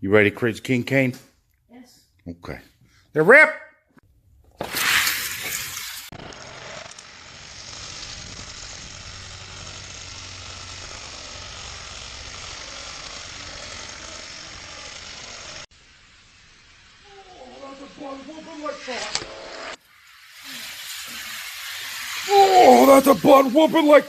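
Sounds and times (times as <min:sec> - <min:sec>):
toy truck wheels rushing on track: 0:04.6 - 0:24.0.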